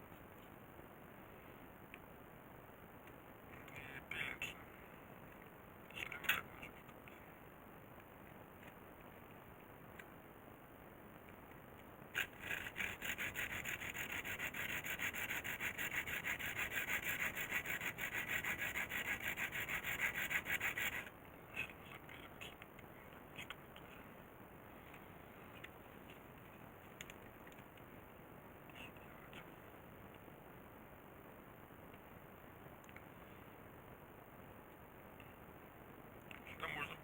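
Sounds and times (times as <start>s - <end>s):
fast scraping strokes: 12.2s - 21.1s
scattered clicks: 26.9s - 27.9s.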